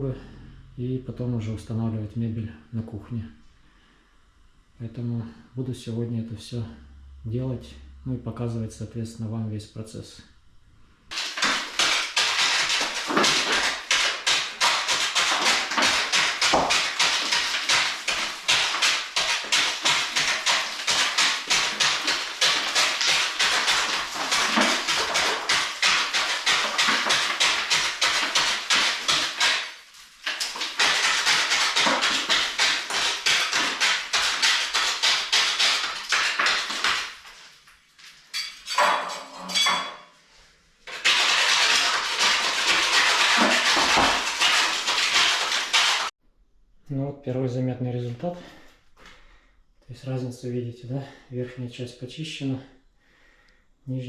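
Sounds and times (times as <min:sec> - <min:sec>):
hand tool scraping masonry wall: 0:11.1 - 0:37.5, 0:40.9 - 0:46.1.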